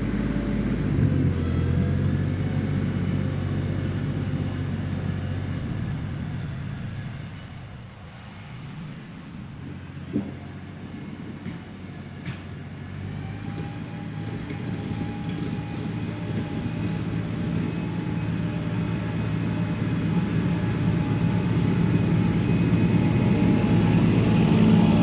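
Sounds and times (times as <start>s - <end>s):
diesel tractor engine running: 0.0s - 25.0s.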